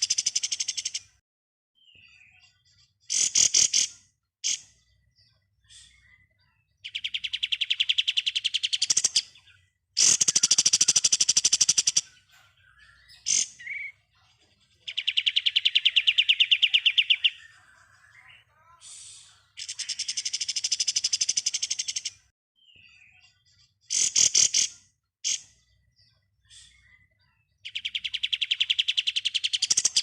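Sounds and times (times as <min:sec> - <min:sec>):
songbird trilling: 0:05.9 - 0:14.1, 0:14.8 - 0:18.4, 0:19.6 - 0:26.0, 0:26.8 - 0:30.0.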